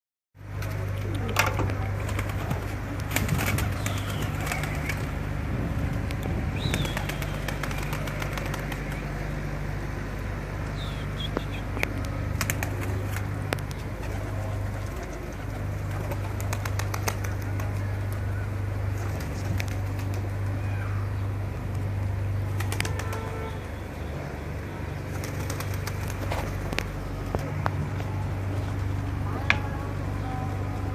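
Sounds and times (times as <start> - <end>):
steady low hum: 0.4 - 30.9
pigeons cooing: 0.5 - 5.4, 10.7 - 21.4
wings flapping: 0.5 - 9.2, 11.4 - 20.7, 21.7 - 23.6, 25.0 - 27.7.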